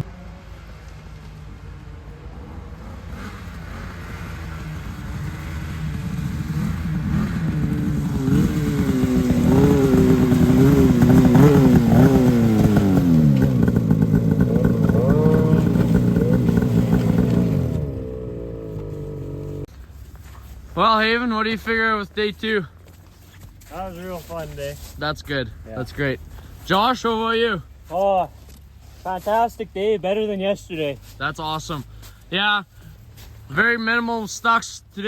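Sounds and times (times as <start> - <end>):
snowmobile engine: 0.0 - 22.7.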